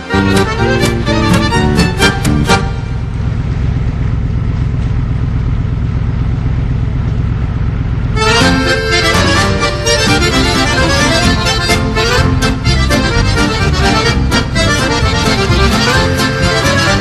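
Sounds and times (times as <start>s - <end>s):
accordion music: 0.0s - 3.7s, 8.1s - 17.0s
off-road vehicle engine rumbling: 0.0s - 17.0s.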